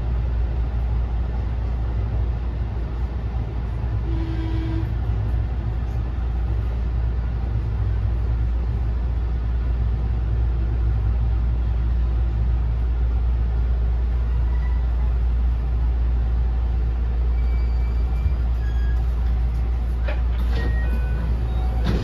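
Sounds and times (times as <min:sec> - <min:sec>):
train wheels rumbling on rail: 0:00.0 - 0:22.0
thin high squeals: 0:17.3 - 0:19.2.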